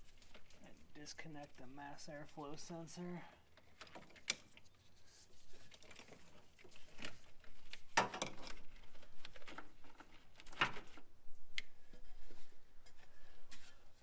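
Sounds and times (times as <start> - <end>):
rustling: 0.0 - 14.0.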